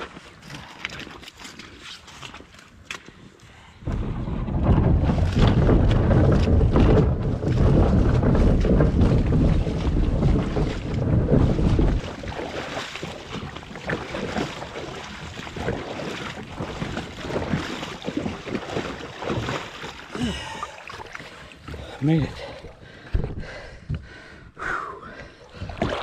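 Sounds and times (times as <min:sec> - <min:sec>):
wind rumble on microphone: 0:03.5 - 0:24.5
knocks and splashes: 0:03.8 - 0:24.1, 0:25.2 - 0:26.0
rushing river water: 0:05.4 - 0:22.8.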